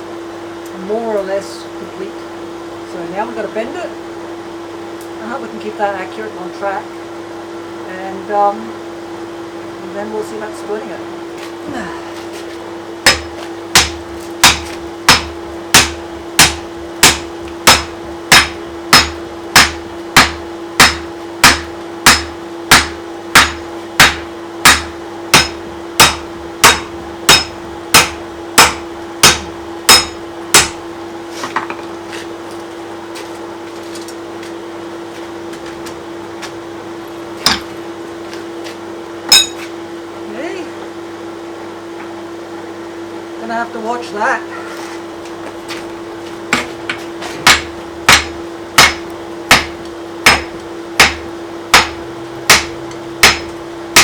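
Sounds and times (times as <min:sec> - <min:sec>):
steady low hum: 0:00.0 - 0:54.0
hammer striking steel on anvil: 0:13.0 - 0:30.8, 0:37.4 - 0:37.7, 0:39.3 - 0:39.7, 0:47.4 - 0:54.0.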